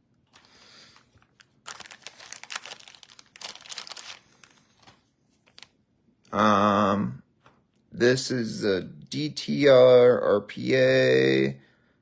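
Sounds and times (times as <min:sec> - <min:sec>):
card pack wrapper crinkling and tearing: 0:00.3 - 0:05.8.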